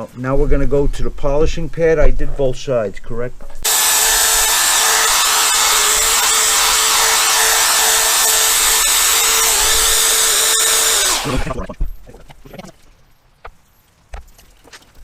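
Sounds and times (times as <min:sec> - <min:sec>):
drill whining: 0:03.6 - 0:11.6.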